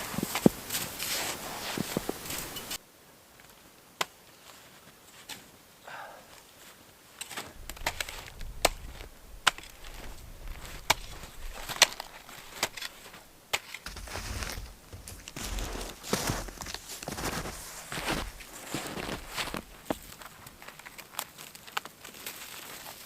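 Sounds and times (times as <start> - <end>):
shovel chopping packed snow: 0.0 - 2.8, 7.2 - 20.2
low rumble: 7.6 - 13.3.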